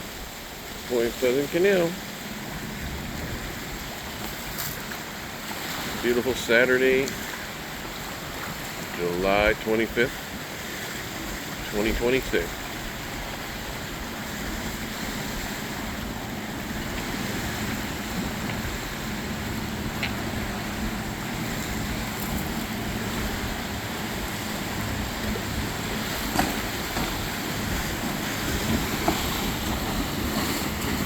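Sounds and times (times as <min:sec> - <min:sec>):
motorboat engine humming: 0:00.0 - 0:31.0
wind noise on microphone: 0:02.3 - 0:06.1, 0:10.2 - 0:31.0.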